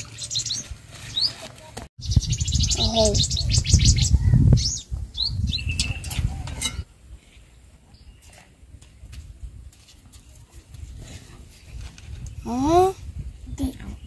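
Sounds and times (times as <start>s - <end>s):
small birds chirping: 0.0s - 6.6s, 12.1s - 14.0s
outdoor background: 0.0s - 14.0s.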